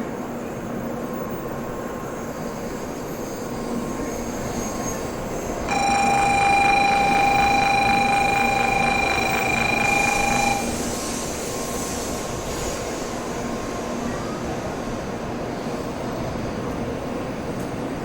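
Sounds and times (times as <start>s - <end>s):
high-pitched steady tone: 5.7s - 10.9s.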